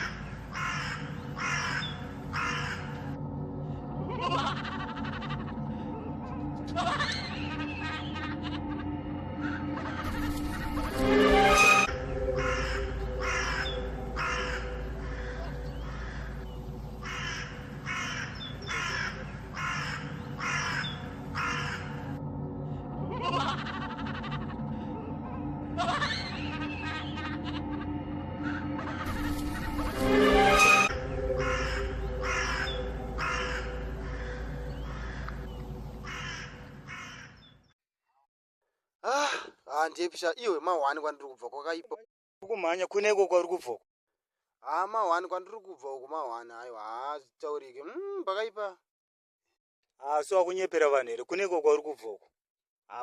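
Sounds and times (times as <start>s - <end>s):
bird cawing harshly: 0.0s - 3.5s, 12.2s - 22.2s, 28.4s - 37.5s
low steady drone: 5.0s - 36.9s.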